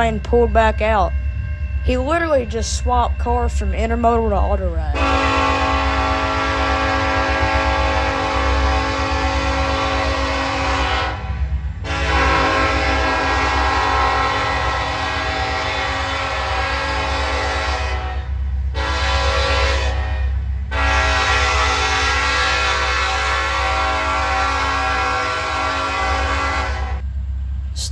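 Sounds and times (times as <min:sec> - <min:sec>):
train rumbling: 0:00.0 - 0:27.9
locomotive air horn blasts: 0:05.0 - 0:27.0.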